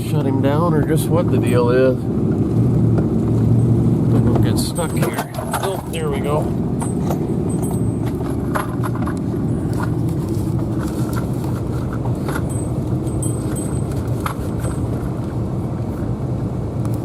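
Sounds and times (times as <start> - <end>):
engine and tyres rumbling: 0.0 - 17.0
clicks and knocks rattling: 4.2 - 15.3.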